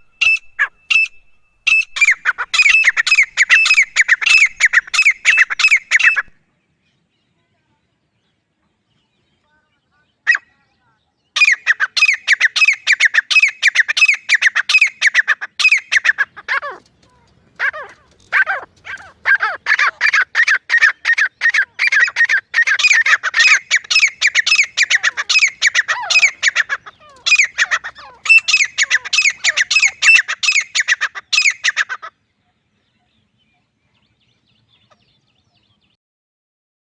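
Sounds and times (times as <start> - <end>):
francolin calling harsh notes: 17.6 - 31.9.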